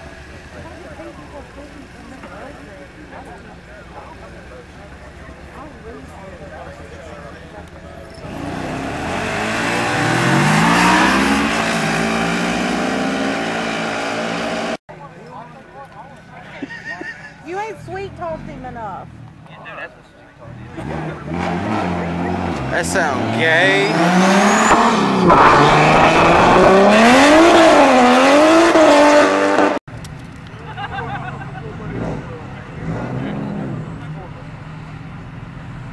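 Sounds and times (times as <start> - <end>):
car engine accelerating: 0.0 - 14.8, 20.4 - 29.8, 31.4 - 35.9.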